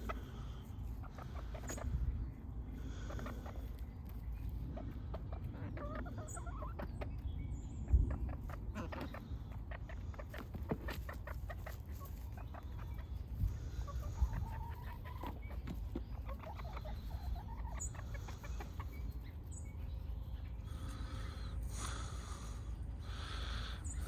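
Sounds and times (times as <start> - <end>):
hens clucking: 0.0 - 24.0
wind rumble on microphone: 7.1 - 8.9.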